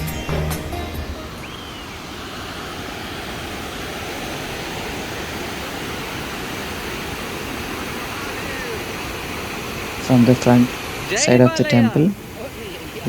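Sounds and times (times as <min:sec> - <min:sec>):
background music: 0:00.0 - 0:01.6
water rushing through a dam: 0:01.4 - 0:13.0.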